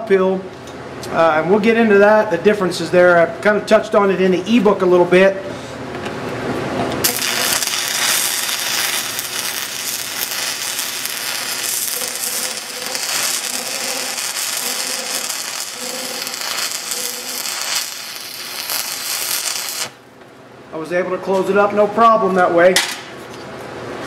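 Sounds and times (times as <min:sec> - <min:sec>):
welding arc crackling: 0:07.0 - 0:20.0.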